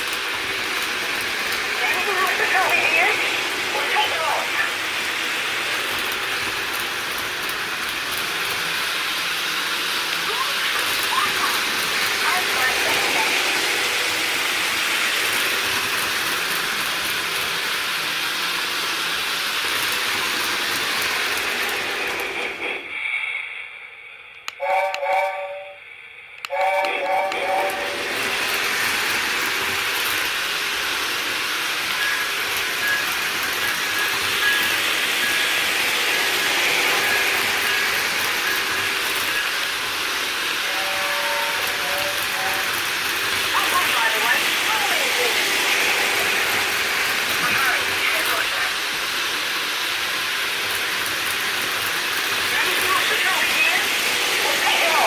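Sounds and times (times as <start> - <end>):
model train hissing on track: 0.0 - 55.0
toy train whistle blasts: 24.5 - 25.8, 26.4 - 28.0, 40.5 - 42.9.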